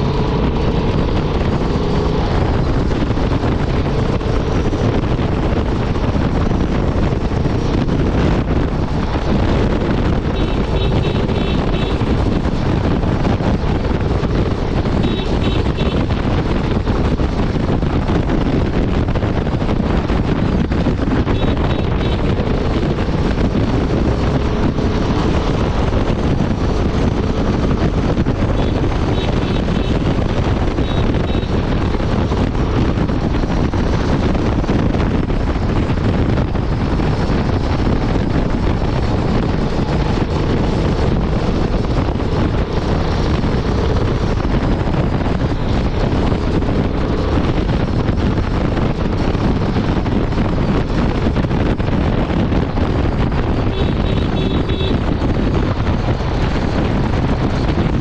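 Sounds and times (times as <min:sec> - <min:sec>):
motorcycle engine cruising: 0:00.0 - 0:58.0
wind rushing over microphone: 0:00.0 - 0:58.0.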